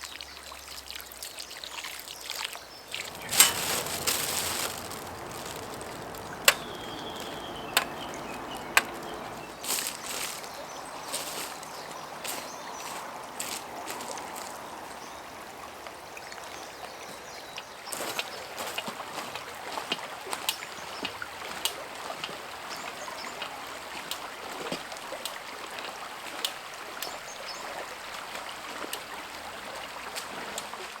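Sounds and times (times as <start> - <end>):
campfire crackling: 2.9 - 14.7.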